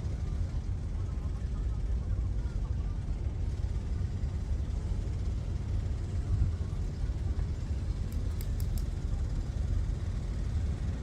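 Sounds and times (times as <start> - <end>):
faint high ticks: 8.1 - 8.9.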